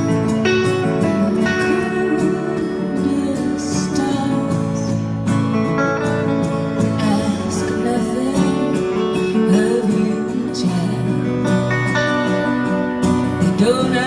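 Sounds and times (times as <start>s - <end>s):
acoustic guitar: 0.0s - 14.0s
live band playing: 0.0s - 14.0s
person singing folk song: 0.0s - 14.0s.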